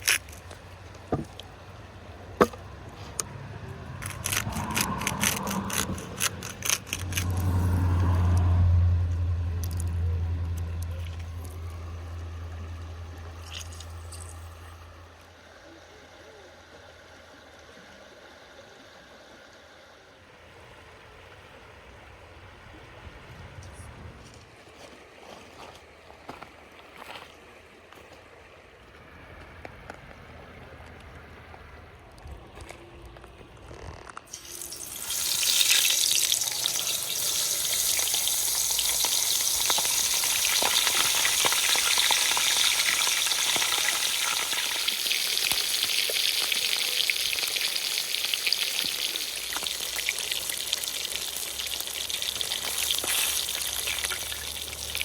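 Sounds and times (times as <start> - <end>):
fish sizzling in hot oil: 34.3 - 55.0.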